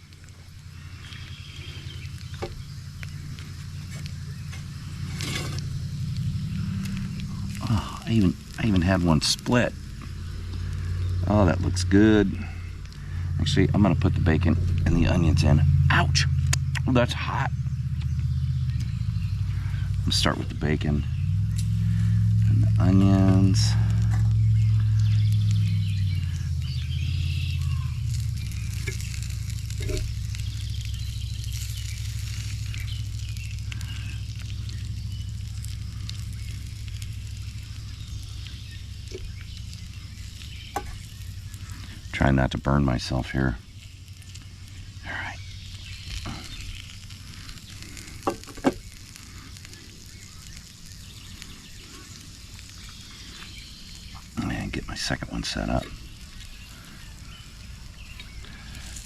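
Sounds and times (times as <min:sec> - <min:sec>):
bacon and onions sizzling: 0:00.0 - 0:59.0
steady low hum: 0:00.0 - 0:59.0
sharp clicks: 0:16.4 - 0:17.0.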